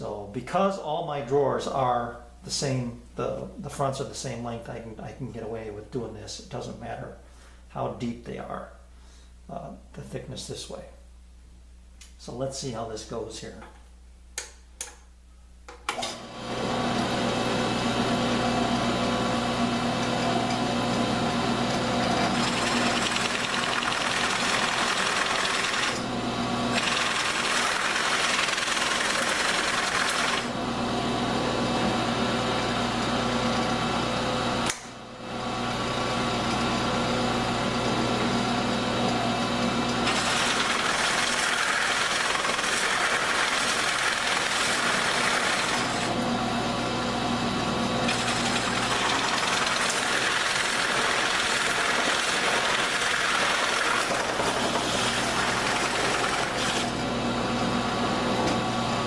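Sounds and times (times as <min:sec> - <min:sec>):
power tool cutting wood: 0:19.3 - 0:30.6, 0:39.9 - 0:46.3, 0:47.8 - 0:57.2.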